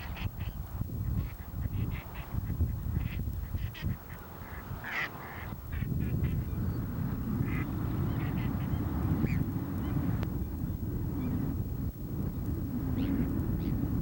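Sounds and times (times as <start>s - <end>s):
steady low rumble: 0.0s - 14.0s
waterfowl calling: 1.2s - 6.4s.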